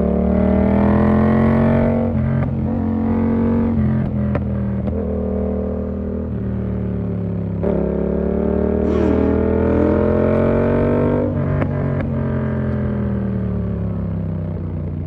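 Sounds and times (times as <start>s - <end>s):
motorcycle engine revving: 6.5s - 14.6s.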